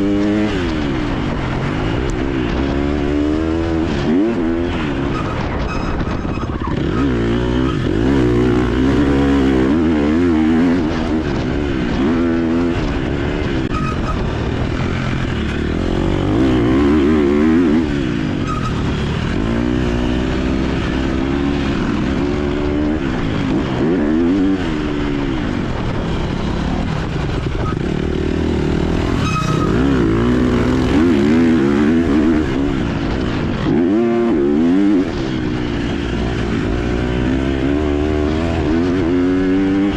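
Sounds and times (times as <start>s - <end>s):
motocross engine revving: 15.0s - 25.1s, 27.8s - 39.9s.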